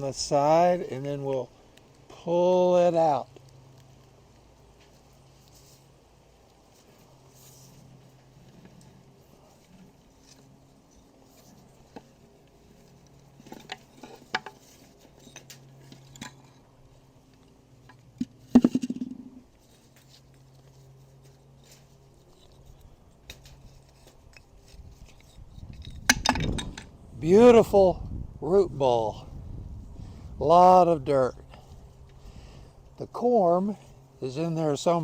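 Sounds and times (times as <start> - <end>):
soil rustling: 0.0 - 27.8.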